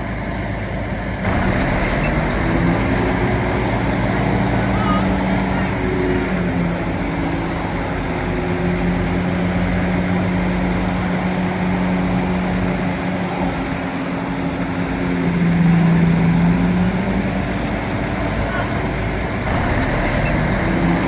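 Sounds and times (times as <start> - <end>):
heavy machine engine running: 0.5 - 12.6, 14.1 - 21.0.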